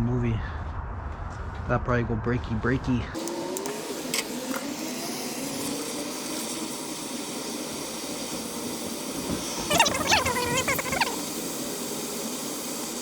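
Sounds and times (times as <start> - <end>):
torch flame hissing: 3.2 - 13.0.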